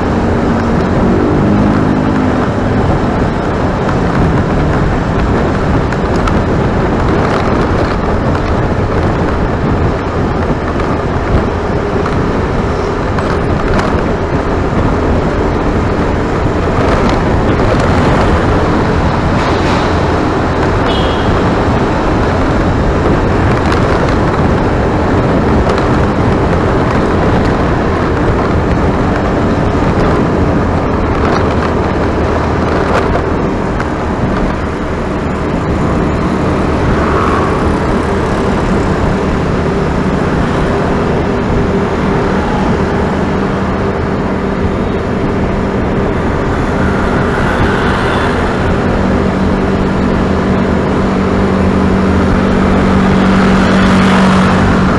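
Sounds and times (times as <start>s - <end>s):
motor vehicle running: 0.0s - 54.9s.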